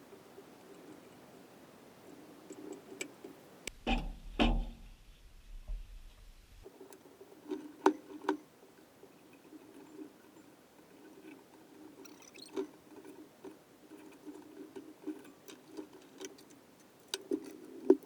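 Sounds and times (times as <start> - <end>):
metal knocks: 3.8 - 5.0.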